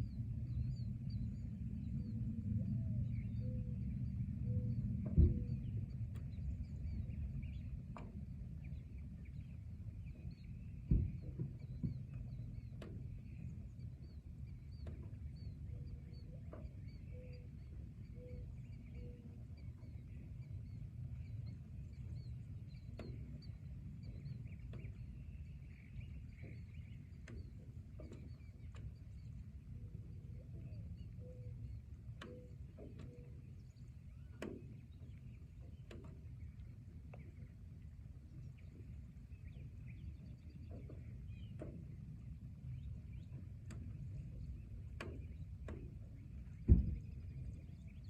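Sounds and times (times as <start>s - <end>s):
steady low rumble: 0.0s - 48.0s
thump: 46.6s - 47.0s.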